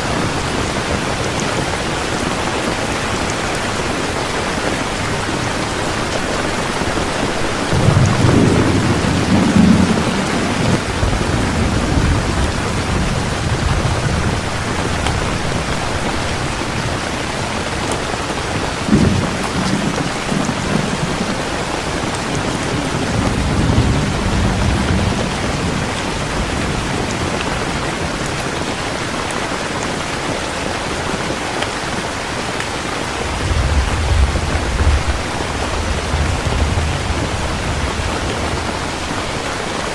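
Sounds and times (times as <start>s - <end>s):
heavy rain falling: 0.0s - 39.9s
thunder rumbling: 0.1s - 30.0s, 33.0s - 39.9s.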